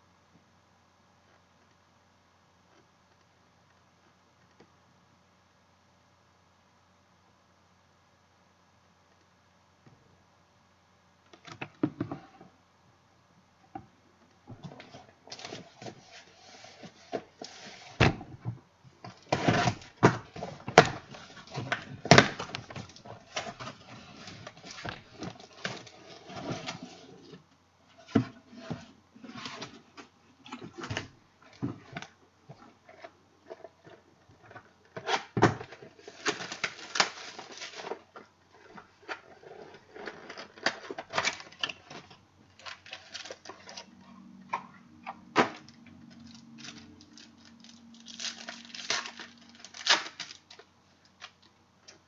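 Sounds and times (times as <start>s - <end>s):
packaging crinkling and tearing: 34.9s - 44.0s, 45.4s - 51.4s.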